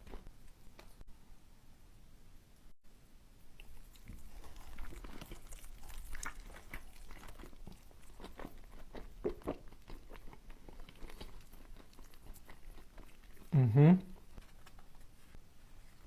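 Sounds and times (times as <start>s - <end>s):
person chewing food: 3.5s - 15.3s.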